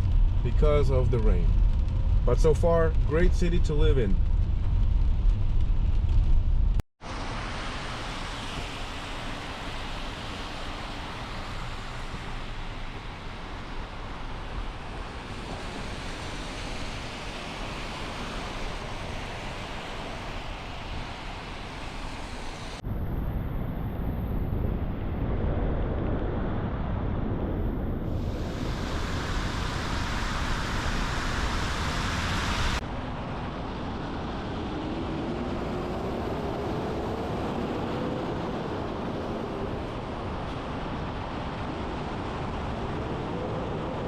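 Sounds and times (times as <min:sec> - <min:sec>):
rain: 0:00.0 - 0:25.2, 0:25.8 - 0:44.0
faint rising whine: 0:03.1 - 0:44.0
tyres hissing on wet pavement: 0:07.0 - 0:22.8, 0:28.2 - 0:32.8.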